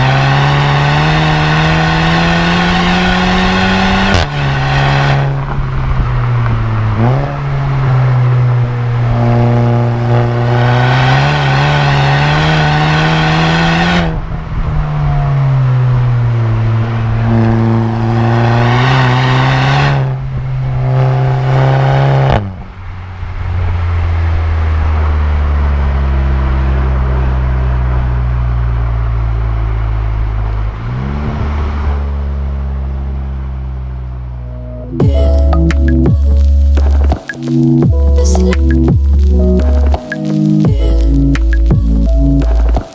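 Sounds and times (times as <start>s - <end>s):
car engine accelerating through gears: 0.0s - 42.9s.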